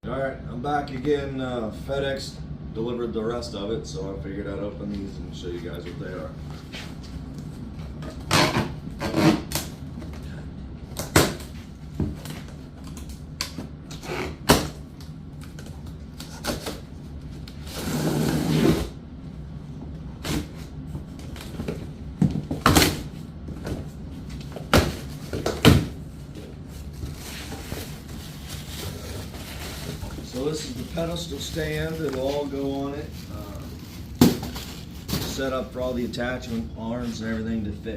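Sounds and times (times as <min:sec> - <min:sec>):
boxes being opened and handled: 0:20.2 - 0:35.6
rustling scrape: 0:26.7 - 0:35.5.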